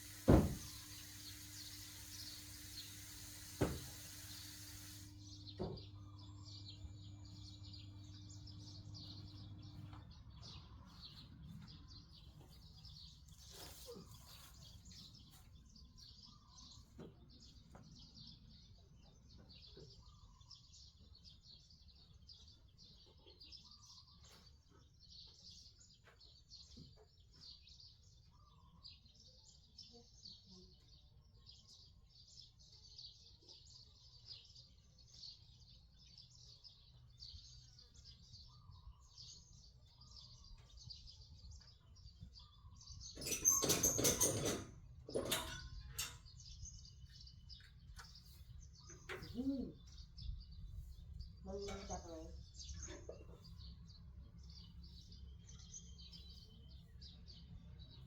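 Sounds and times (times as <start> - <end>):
noisy burst: 0.0 - 5.4
small birds chirping: 0.0 - 58.0.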